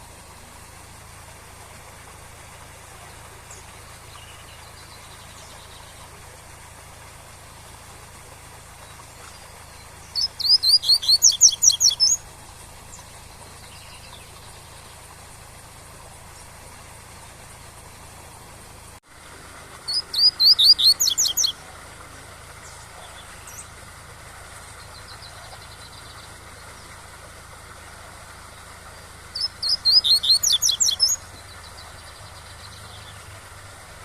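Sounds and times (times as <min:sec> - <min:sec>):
bird singing fast rising phrase: 0:08.7 - 0:15.6, 0:19.8 - 0:23.8, 0:28.5 - 0:33.3
faint short bird chirps: 0:08.8 - 0:12.2, 0:19.9 - 0:21.6, 0:29.4 - 0:33.2.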